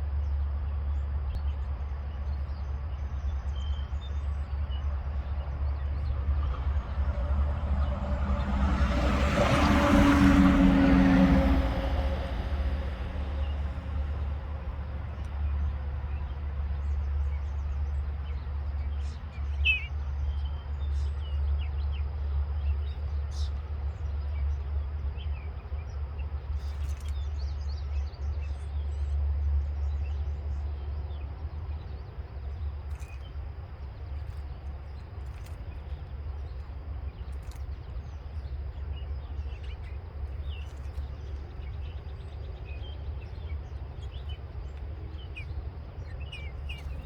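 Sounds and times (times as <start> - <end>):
steady low rumble: 0.0 - 47.0
passing engine: 5.0 - 18.2.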